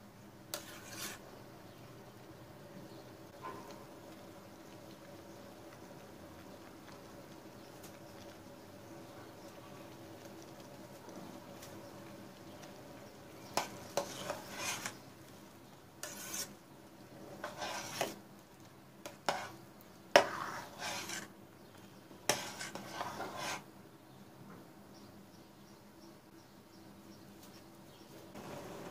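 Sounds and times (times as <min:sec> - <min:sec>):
spoon scraping jam in pot: 0:00.5 - 0:01.2, 0:13.4 - 0:15.0, 0:16.0 - 0:16.6, 0:17.3 - 0:18.2, 0:19.0 - 0:19.6, 0:20.2 - 0:21.3, 0:22.2 - 0:23.7.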